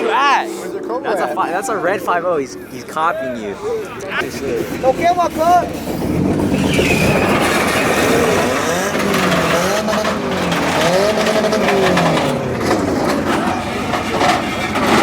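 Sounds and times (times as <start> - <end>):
engines and tyres noise: 0.0 - 15.0
car engine revving: 0.2 - 15.0.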